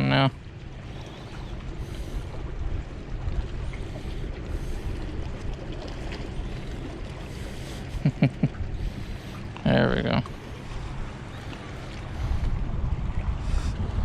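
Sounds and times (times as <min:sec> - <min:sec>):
water noise: 0:00.0 - 0:14.0
wind on microphone: 0:10.2 - 0:14.0.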